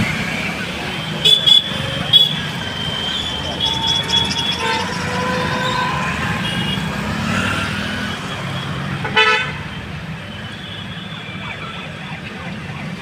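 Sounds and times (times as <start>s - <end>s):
road traffic rumble: 0.0s - 13.0s
vehicle horn toot: 1.2s - 6.9s, 8.5s - 11.2s.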